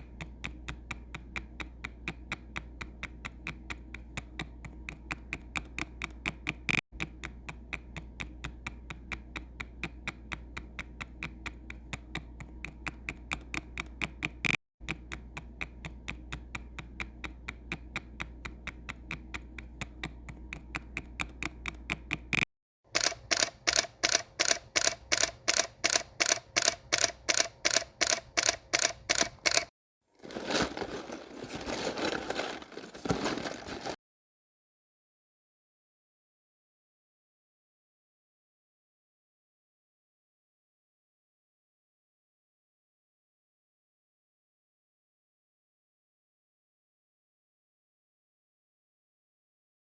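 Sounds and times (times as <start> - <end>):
rapid sharp clicks: 0.0 - 29.7
dense clatter: 30.2 - 34.0.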